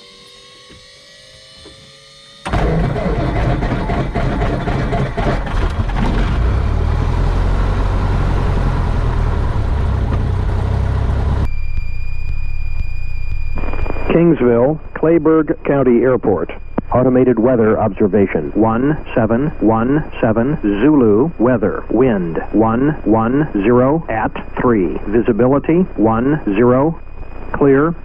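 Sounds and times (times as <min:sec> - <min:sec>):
piston aircraft engine running: 0:02.4 - 0:11.5
high steady whine: 0:07.8 - 0:28.0.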